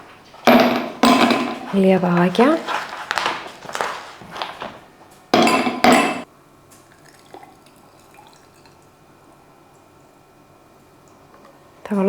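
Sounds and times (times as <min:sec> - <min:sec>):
loud clatters: 0:00.0 - 0:04.8
ice cubes clinking in glass: 0:00.4 - 0:04.8, 0:05.4 - 0:06.3.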